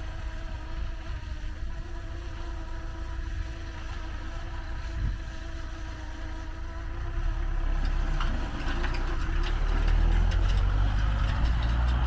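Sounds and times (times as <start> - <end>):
tractor engine rumbling: 6.6 - 12.0
clicks and rattles: 7.8 - 12.0.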